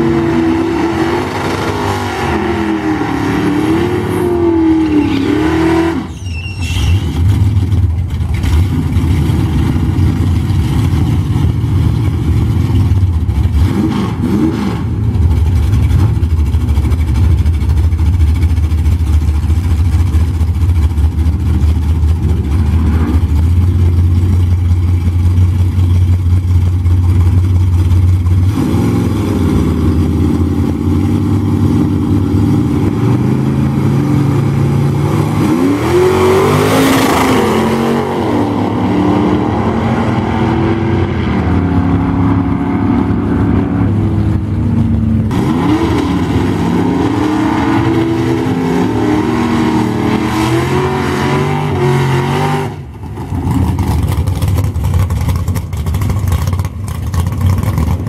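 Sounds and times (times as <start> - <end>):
drag car engines revving: 0.0 - 58.0
engines idling low rumble: 6.1 - 13.6, 15.0 - 35.0, 41.3 - 45.3, 52.8 - 58.0.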